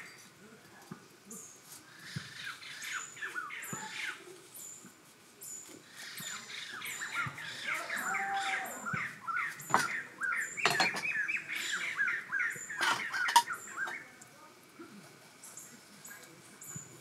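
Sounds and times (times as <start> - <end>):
birds chirping rapidly: 1.2 - 14.2.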